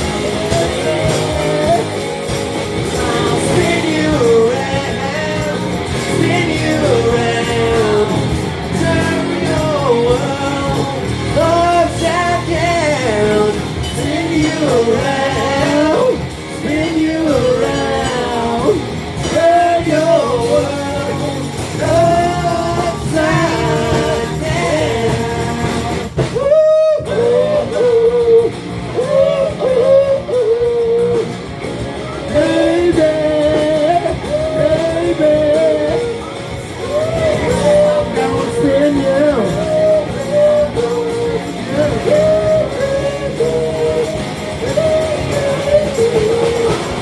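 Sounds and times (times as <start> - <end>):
person singing: 0.0 - 47.0
rock and roll band playing: 0.0 - 47.0.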